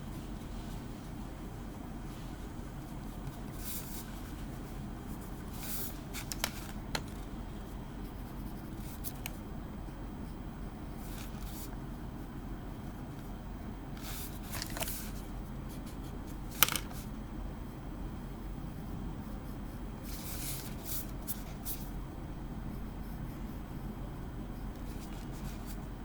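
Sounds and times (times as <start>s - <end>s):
pencil scratching on paper: 7.6s - 9.2s, 18.7s - 21.9s, 22.6s - 25.9s.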